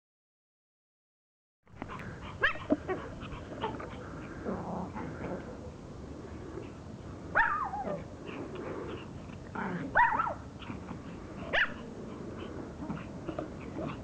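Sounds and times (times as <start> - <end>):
dogs growling: 1.8 - 5.7, 7.6 - 14.0
dogs barking: 7.3 - 8.0, 9.9 - 10.5, 11.5 - 13.1.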